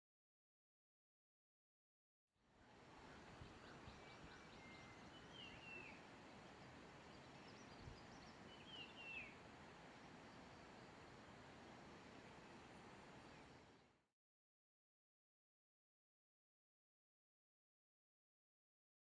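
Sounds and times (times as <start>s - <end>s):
steady hiss: 2.5s - 14.0s
birds chirping: 2.9s - 14.0s
bird calls with falling notes: 3.0s - 9.4s.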